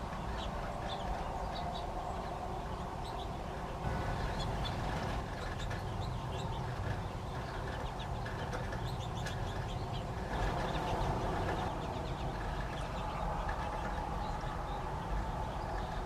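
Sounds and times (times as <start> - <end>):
birds chirping and calling: 0.0 - 16.0
steady low rumble: 0.0 - 16.0.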